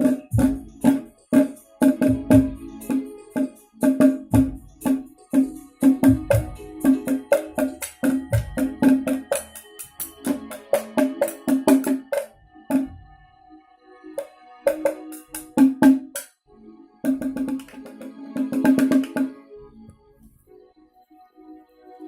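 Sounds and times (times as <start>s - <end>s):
percussion strikes with pitched ring: 0.0s - 13.0s.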